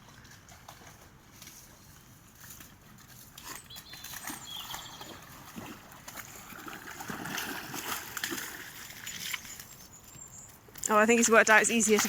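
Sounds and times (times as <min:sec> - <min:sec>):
dog splashing through water: 0:02.4 - 0:09.8.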